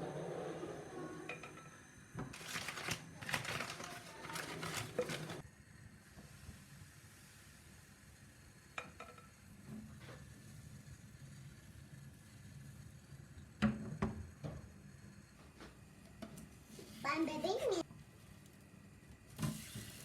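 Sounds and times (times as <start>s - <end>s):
plastic crinkling: 2.3s - 5.4s.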